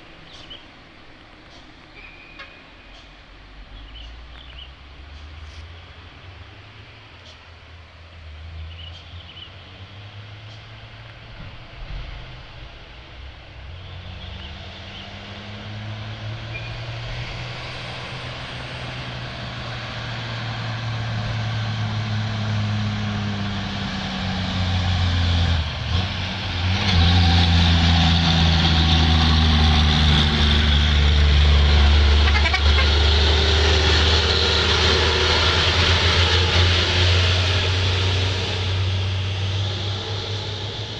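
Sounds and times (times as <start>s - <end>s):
truck engine labouring uphill: 0.0s - 40.9s.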